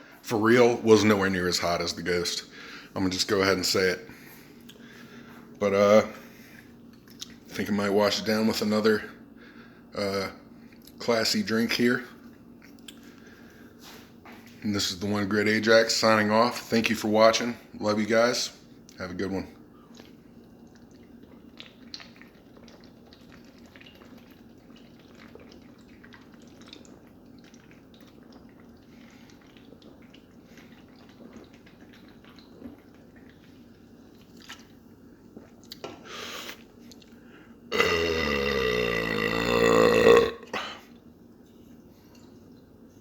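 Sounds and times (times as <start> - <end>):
man burping: 37.7 - 40.8.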